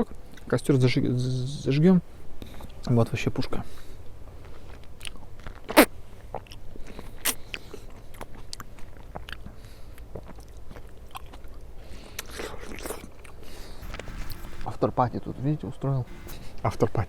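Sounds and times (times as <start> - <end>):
crunchy chewing: 4.4 - 14.4.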